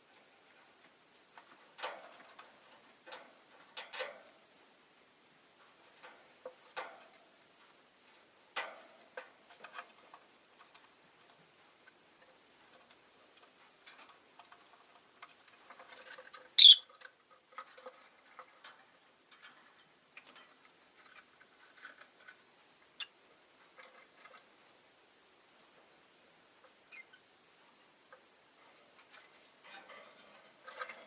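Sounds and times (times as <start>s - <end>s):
birds clicking and rustling: 0.2s - 4.4s, 5.6s - 22.4s, 28.1s - 31.0s
shrill bird chirp: 16.6s - 16.8s.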